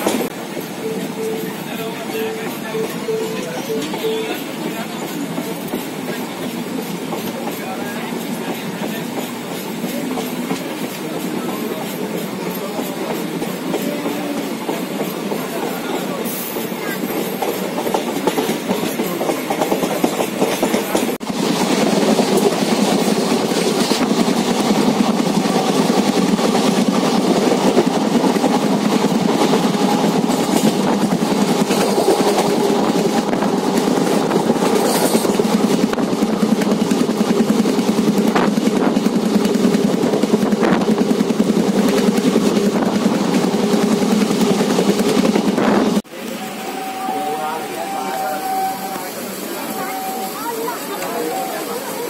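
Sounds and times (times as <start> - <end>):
train wheels rumbling on track: 0.0 - 52.0.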